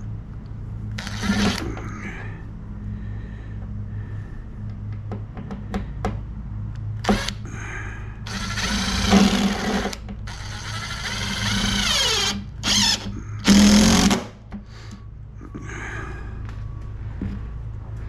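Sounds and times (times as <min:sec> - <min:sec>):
power drill running: 0:01.0 - 0:01.7, 0:07.0 - 0:07.4, 0:08.2 - 0:14.3.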